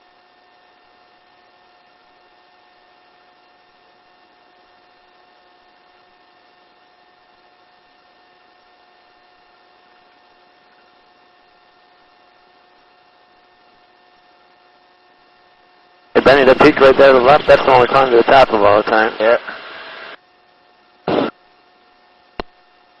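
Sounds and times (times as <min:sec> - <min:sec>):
intercom hum and hiss: 0:16.2 - 0:20.2, 0:21.0 - 0:21.4
steady electrical tones: 0:16.2 - 0:20.2, 0:21.1 - 0:21.4.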